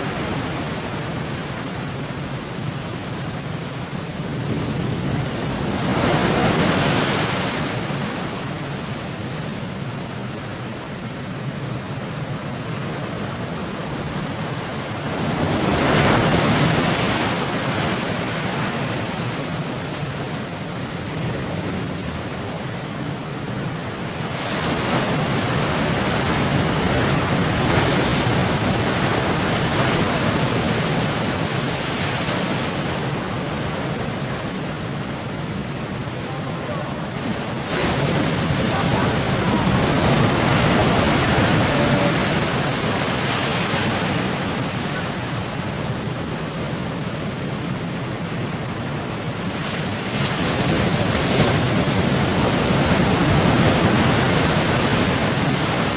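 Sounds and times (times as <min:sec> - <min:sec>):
sea waves crashing against boat: 0:00.0 - 0:55.9
wind buffeting microphone: 0:11.9 - 0:55.9.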